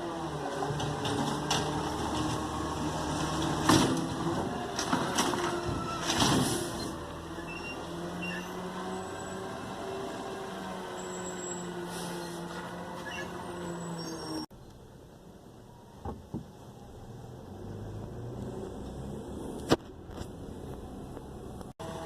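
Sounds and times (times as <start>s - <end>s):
garbage truck humming: 0.0s - 14.5s.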